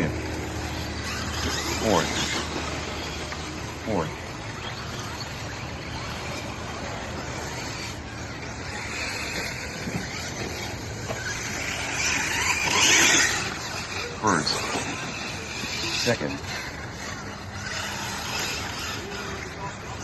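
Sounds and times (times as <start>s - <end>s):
electric motors whining: 0.0s - 20.0s.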